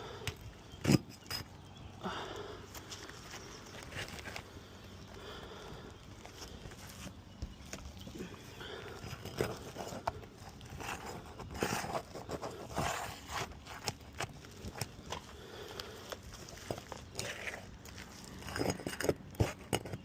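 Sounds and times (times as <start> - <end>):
tools scraping roof shingles: 0.8 - 1.5, 8.6 - 20.0.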